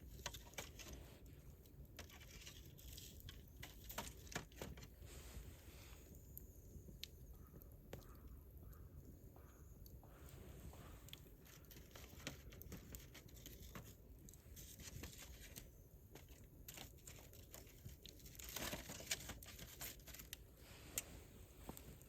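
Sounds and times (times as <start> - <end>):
campfire crackling and popping: 6.0 - 10.4, 13.9 - 14.6.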